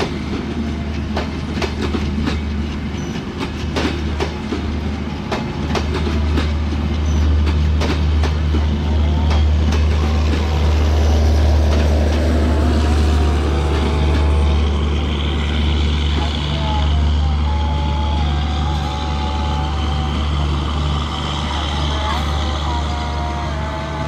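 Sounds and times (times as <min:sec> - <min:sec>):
train wheels clicking over rail joints: 0:00.0 - 0:17.1
low train rumble: 0:00.0 - 0:24.0.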